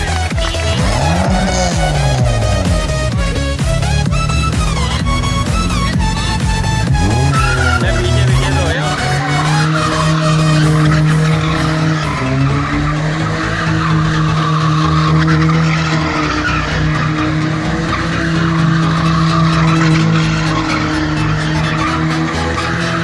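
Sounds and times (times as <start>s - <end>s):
car engine revving high: 0.0s - 23.0s
tyres skidding: 0.0s - 23.0s.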